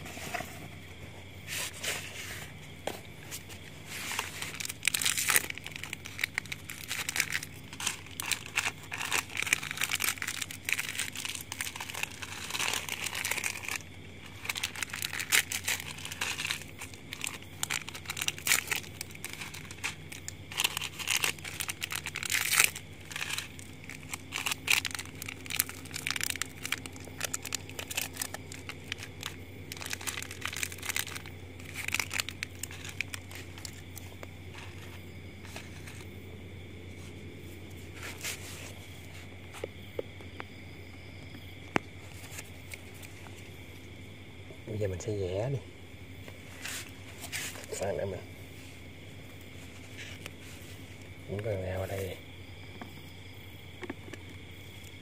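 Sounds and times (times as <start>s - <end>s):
steady low hum: 0.0s - 55.0s
plastic wrapping crinkling: 3.2s - 36.1s, 42.0s - 43.4s, 49.5s - 52.1s.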